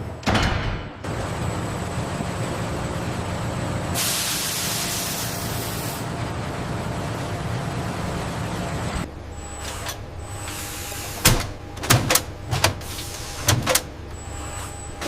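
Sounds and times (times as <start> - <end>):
machinery hum: 0.0 - 15.0
hissing air burst: 4.0 - 6.0.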